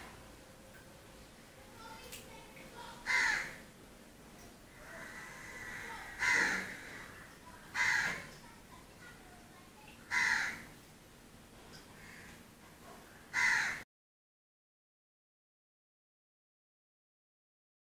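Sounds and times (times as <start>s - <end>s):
bird calling: 2.8s - 3.6s, 4.8s - 8.3s.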